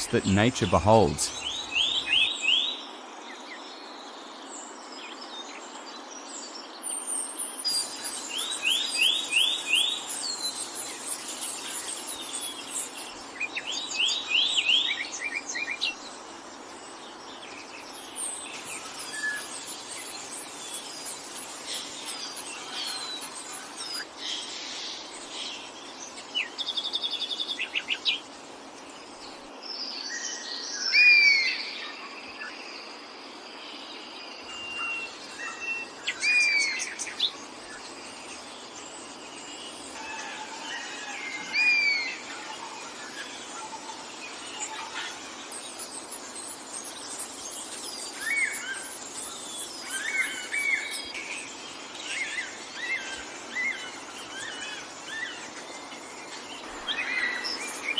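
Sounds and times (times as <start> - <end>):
steady background hiss: 0.0 - 57.9
birds chirping and whistling: 6.8 - 15.9, 17.8 - 24.7, 44.3 - 57.9.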